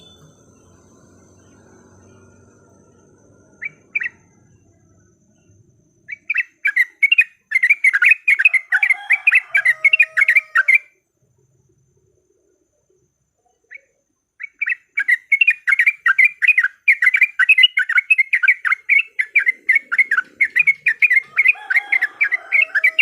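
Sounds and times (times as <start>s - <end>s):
bird fast chattering: 13.8s - 23.0s.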